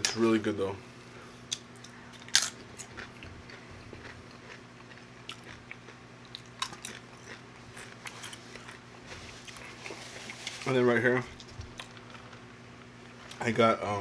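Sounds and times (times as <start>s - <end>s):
chips crunching: 1.5s - 10.7s.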